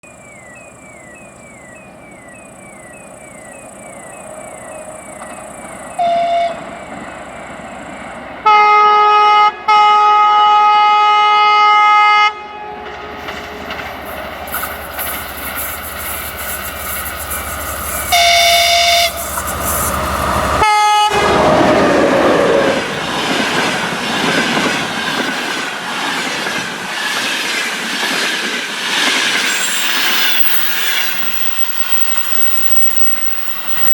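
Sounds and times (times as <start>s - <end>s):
locomotive engine drone: 0.0s - 9.7s, 12.8s - 26.0s, 29.3s - 33.9s
train passing with loud rush: 0.0s - 33.9s
multi-note train horn: 6.0s - 6.8s, 8.4s - 13.7s, 17.9s - 22.8s.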